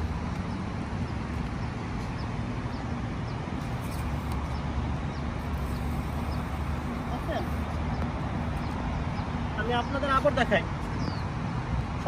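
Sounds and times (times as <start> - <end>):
small bird chirping: 0.0 - 11.4.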